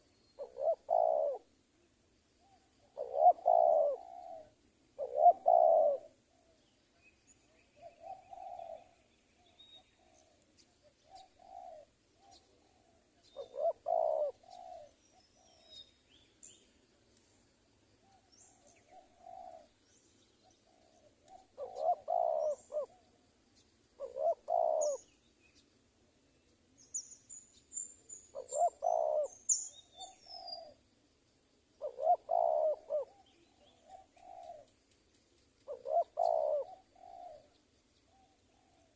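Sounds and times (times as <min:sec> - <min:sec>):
doves cooing: 0:00.0 - 0:01.5, 0:02.4 - 0:06.6, 0:07.8 - 0:10.4, 0:11.0 - 0:15.8, 0:18.0 - 0:19.8, 0:20.4 - 0:23.2, 0:24.0 - 0:25.1, 0:28.3 - 0:30.8, 0:31.8 - 0:34.7, 0:35.7 - 0:38.9
small birds chirping: 0:00.0 - 0:38.9.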